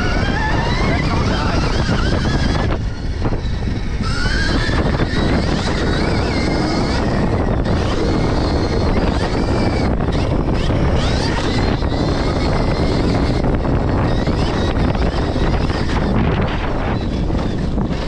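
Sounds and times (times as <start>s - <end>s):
electric motor whining: 0.0s - 18.0s
wind rush on microphone: 0.0s - 18.0s.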